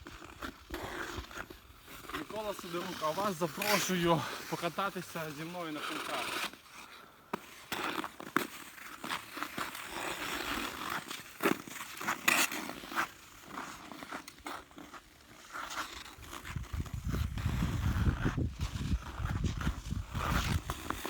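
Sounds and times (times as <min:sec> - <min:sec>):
ice skate blades scraping ice: 0:00.0 - 0:21.0.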